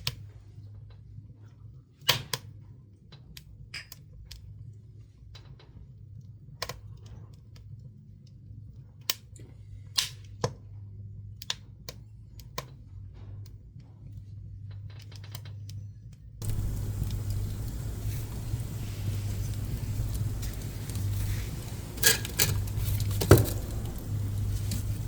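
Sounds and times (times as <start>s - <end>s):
wood fire crackling and popping: 16.4s - 25.0s.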